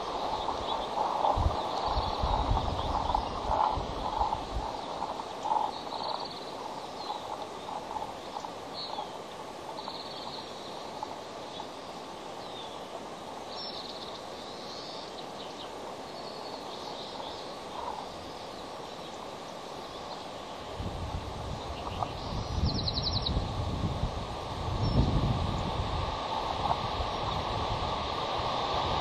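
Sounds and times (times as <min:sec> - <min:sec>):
rushing background noise: 0:00.0 - 0:29.0.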